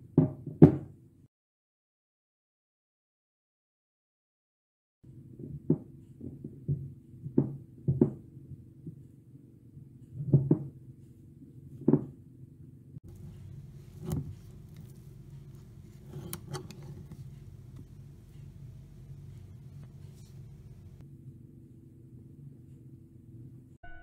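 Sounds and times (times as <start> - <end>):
low steady hum: 10.8 - 24.0.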